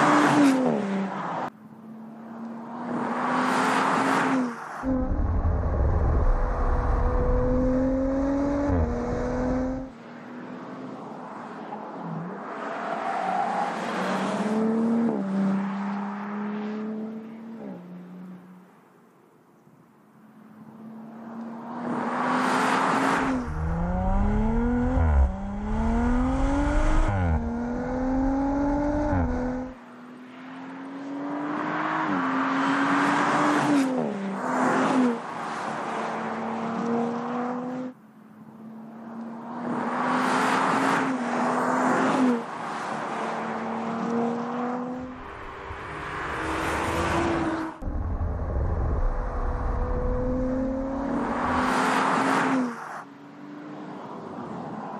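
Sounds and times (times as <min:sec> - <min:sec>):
road and wind noise: 0:00.0 - 0:54.9
car engine accelerating hard: 0:04.9 - 0:09.9, 0:23.2 - 0:29.8, 0:44.0 - 0:52.4.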